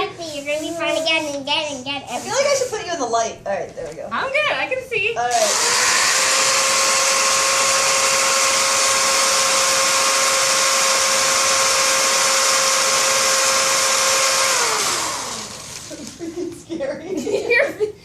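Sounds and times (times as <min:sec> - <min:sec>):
electric drill whining: 0:05.3 - 0:16.2.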